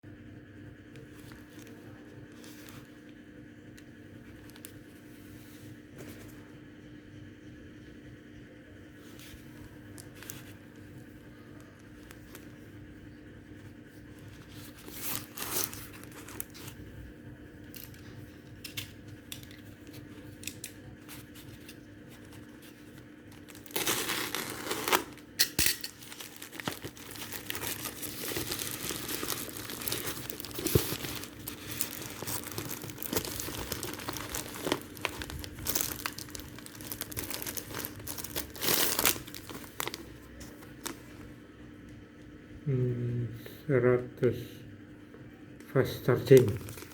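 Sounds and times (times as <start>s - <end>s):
faint steady hum: 0.0s - 46.9s
plastic packaging crinkling and tearing: 11.6s - 12.6s, 14.1s - 16.9s, 17.7s - 41.2s, 46.3s - 46.9s.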